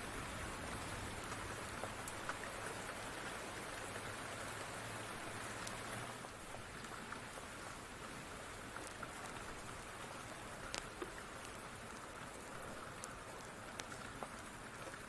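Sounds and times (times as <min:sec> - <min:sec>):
wood fire crackling: 0:00.3 - 0:02.9, 0:05.6 - 0:15.0.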